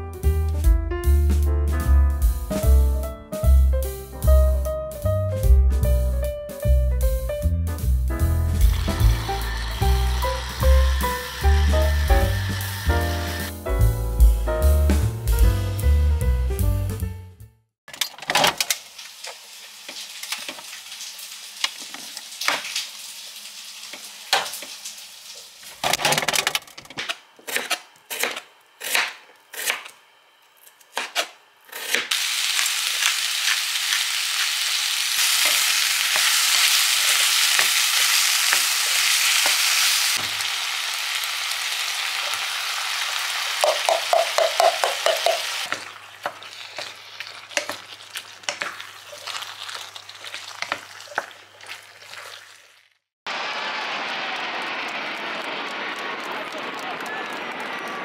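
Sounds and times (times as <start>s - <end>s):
food sizzling in hot pan: 8.5s - 13.6s, 18.8s - 25.8s, 32.1s - 55.0s
utensils knocking and clattering: 43.6s - 46.9s.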